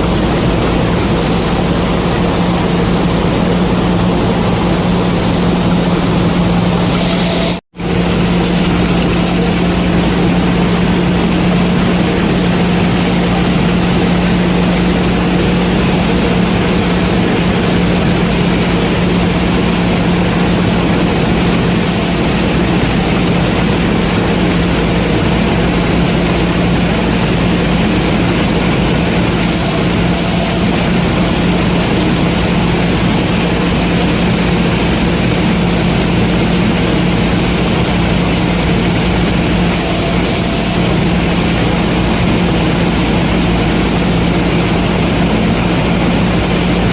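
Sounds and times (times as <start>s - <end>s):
combine harvester drone: 0.0s - 46.9s.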